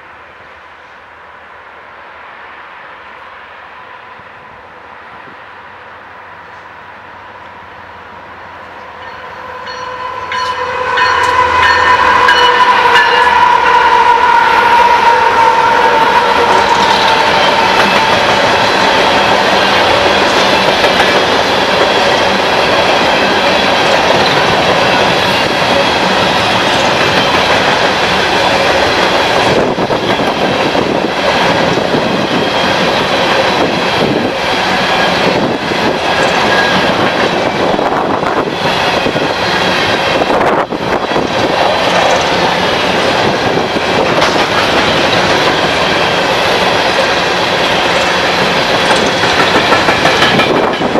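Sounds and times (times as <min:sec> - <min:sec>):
train wheels rumbling on rails: 0:00.0 - 0:50.9
clickety-clack over rail joints: 0:15.9 - 0:50.9.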